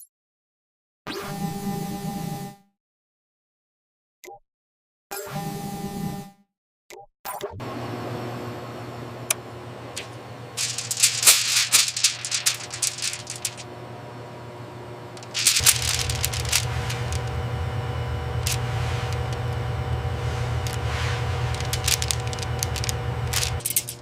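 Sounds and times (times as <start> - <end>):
steady low hum: 8.1 - 24.0
rapid rattling clicks: 10.6 - 13.6, 15.2 - 17.3, 18.4 - 19.6, 20.4 - 24.0.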